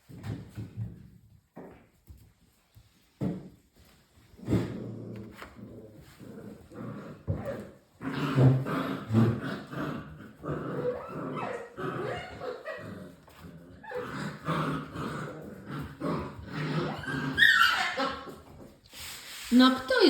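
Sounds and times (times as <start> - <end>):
puppies yipping and growling: 7.2 - 18.6.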